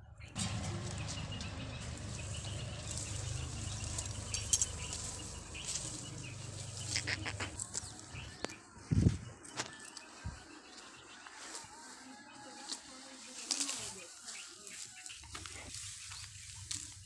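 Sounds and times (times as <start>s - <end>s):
birds chirping: 0.0s - 17.0s
steady low rumble: 0.2s - 8.4s.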